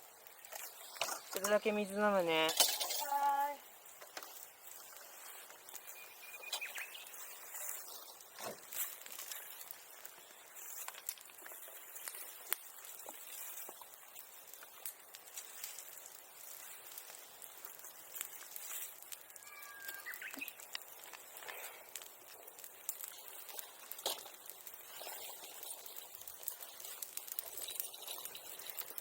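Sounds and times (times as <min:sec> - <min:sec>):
bonfire crackling and popping: 0:00.0 - 0:29.0
bird chirping: 0:05.8 - 0:07.2, 0:19.3 - 0:20.6.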